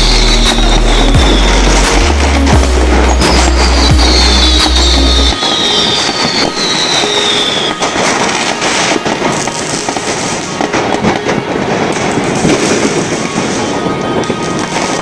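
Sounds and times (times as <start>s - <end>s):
deep steady rumble: 0.0s - 5.3s
fireworks bangs crackling: 0.0s - 15.0s
whistling rockets: 0.0s - 15.0s.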